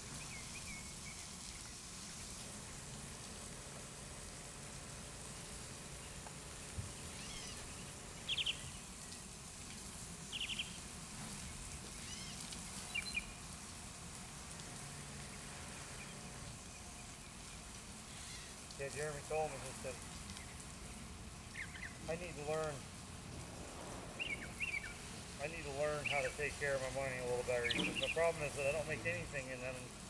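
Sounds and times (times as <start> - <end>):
spraying water hiss: 0.0 - 30.0
bird chirping: 0.1 - 1.8, 6.8 - 9.0, 10.3 - 10.8, 12.0 - 13.4, 21.4 - 22.2, 24.2 - 29.3.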